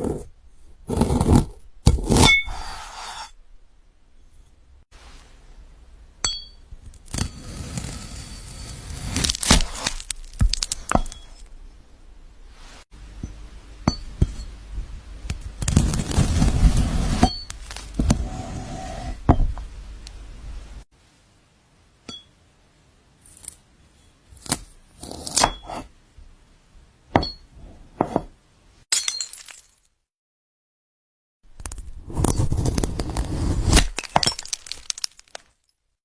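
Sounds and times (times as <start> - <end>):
knife slicing crunchy fruit: 8.6 - 10.9.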